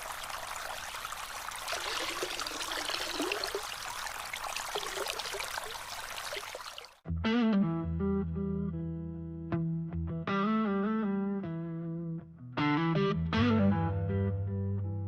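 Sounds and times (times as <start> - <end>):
water trickling and gurgling: 0.0 - 7.0.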